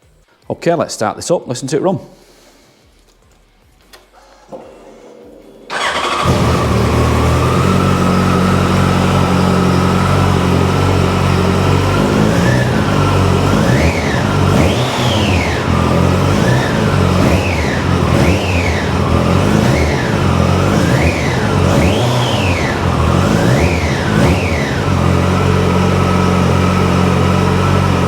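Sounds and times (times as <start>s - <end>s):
motorcycle engine idling and revving: 5.7s - 28.0s.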